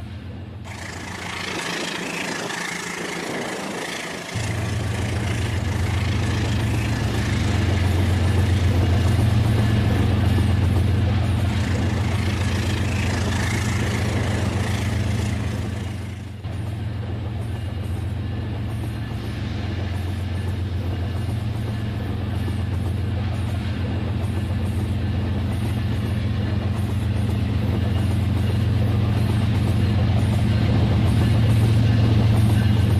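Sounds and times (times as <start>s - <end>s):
toy train running on track: 0.7s - 16.4s.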